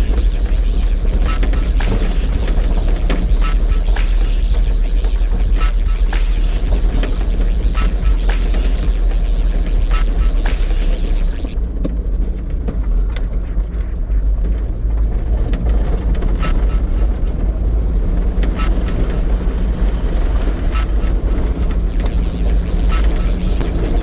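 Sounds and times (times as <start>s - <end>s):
van engine and road rumble: 11.5s - 22.6s.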